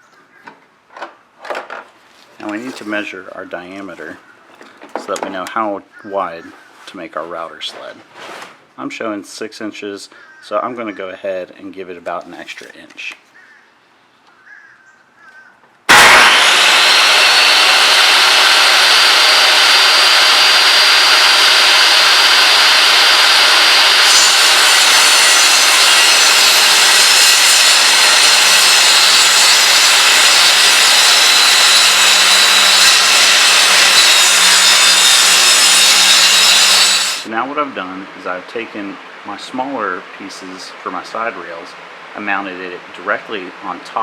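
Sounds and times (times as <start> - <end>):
electric power saw whining: 15.9 - 37.3.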